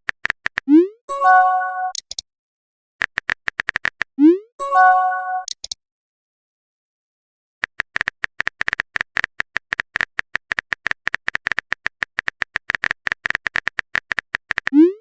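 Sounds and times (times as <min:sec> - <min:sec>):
keyboard typing clicks: 0:00.0 - 0:00.8, 0:01.8 - 0:02.2, 0:03.0 - 0:04.2, 0:05.4 - 0:05.8, 0:07.6 - 0:14.8.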